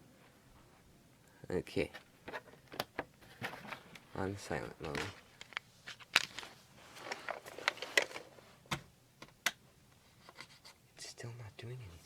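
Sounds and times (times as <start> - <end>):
plastic rustling: 2.3 - 8.6.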